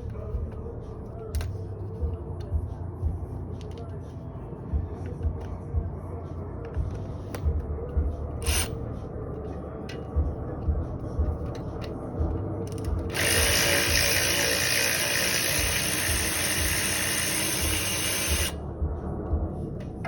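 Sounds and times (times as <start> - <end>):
power tool running: 8.4 - 8.8, 12.7 - 18.6.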